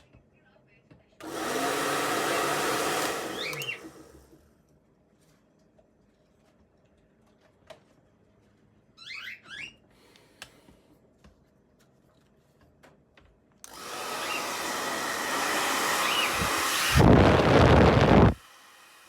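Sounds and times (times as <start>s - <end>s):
hair dryer blowing: 1.2s - 4.4s, 13.6s - 19.0s.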